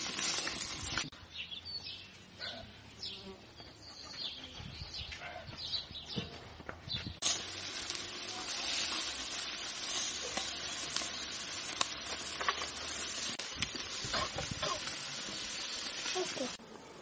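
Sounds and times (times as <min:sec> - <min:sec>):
food sizzling in hot fat: 0:00.0 - 0:01.1, 0:07.2 - 0:17.0.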